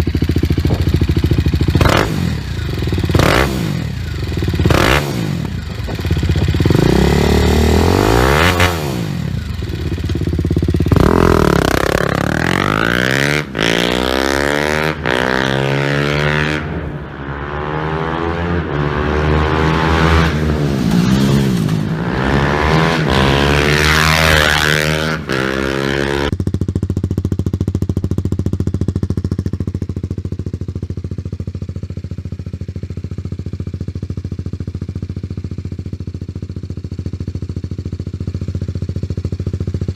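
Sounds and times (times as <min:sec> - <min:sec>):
motorcycle engine idling: 0:00.0 - 0:14.1, 0:26.3 - 0:39.9
motorcycle engine revving: 0:00.0 - 0:39.9.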